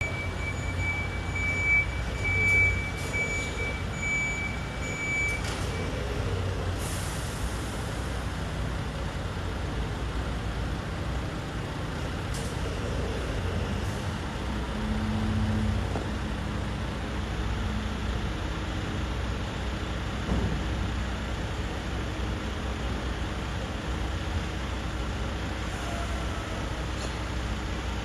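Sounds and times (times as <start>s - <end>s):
reversing alarm beeping: 0.0s - 6.3s
diesel engine rumbling: 0.0s - 28.0s
air brake hiss: 6.8s - 7.9s.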